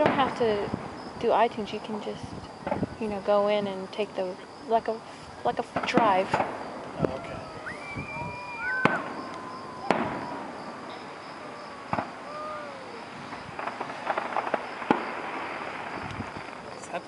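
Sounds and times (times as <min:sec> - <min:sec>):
firework bangs: 0:05.7 - 0:16.7
firework crackling: 0:05.7 - 0:17.0.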